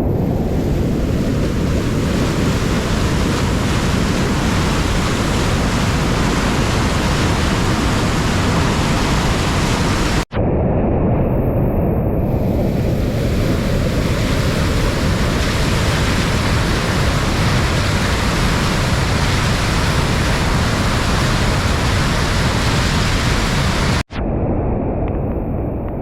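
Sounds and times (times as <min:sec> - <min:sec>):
floodwater rushing: 0:00.7 - 0:10.3, 0:13.0 - 0:24.0.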